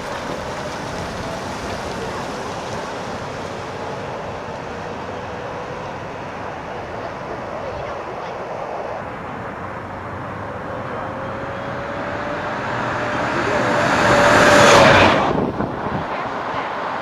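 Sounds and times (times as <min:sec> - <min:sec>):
tyre and road noise: 0:00.0 - 0:17.0
loud rush: 0:10.4 - 0:17.0.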